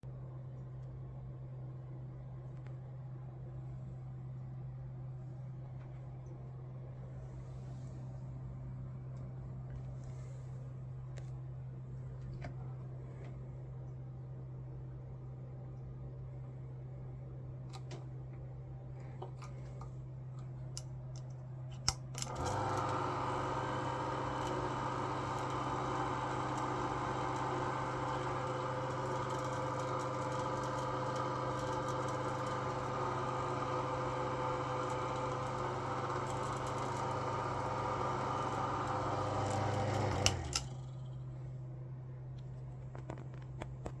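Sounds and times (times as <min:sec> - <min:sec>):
hair dryer motor and fan: 0:21.8 - 0:41.4
hair dryer switch click: 0:39.5 - 0:40.7.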